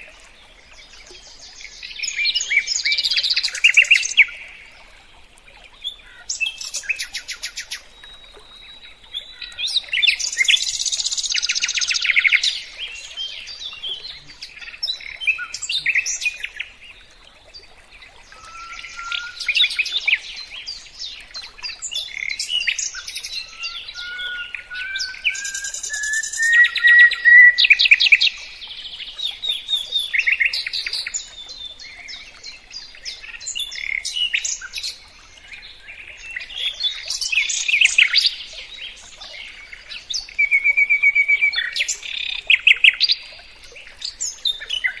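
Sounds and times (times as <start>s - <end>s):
songbird singing trills and whistles: 5.8s - 16.7s, 18.3s - 43.3s.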